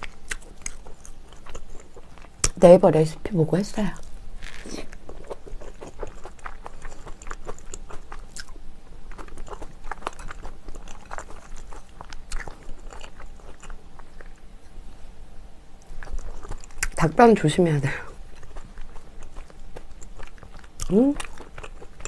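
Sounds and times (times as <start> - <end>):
soft food crunches: 0.0 - 2.6, 3.9 - 14.5, 15.8 - 17.2, 17.9 - 22.0.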